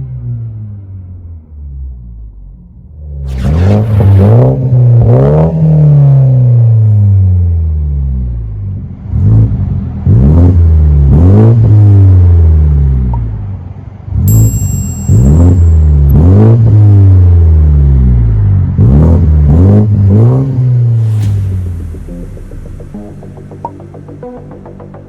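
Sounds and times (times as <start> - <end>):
car engine revving: 3.0 - 13.2, 15.3 - 25.0.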